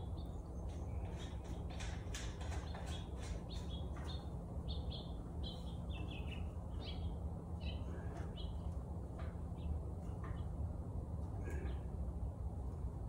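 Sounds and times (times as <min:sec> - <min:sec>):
steady low hum: 0:00.0 - 0:13.0
bird chirping: 0:02.5 - 0:08.7.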